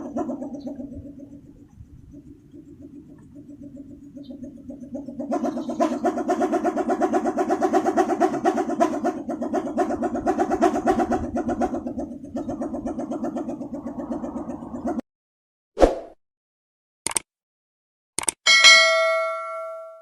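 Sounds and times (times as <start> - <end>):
wooden propeller humming in wind: 0.0 - 15.0.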